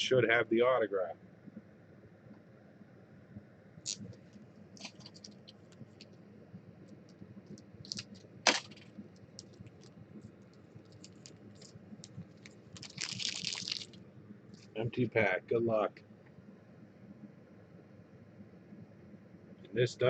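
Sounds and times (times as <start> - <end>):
card pack crinkling: 4.8 - 6.1, 7.8 - 9.9, 10.5 - 14.0.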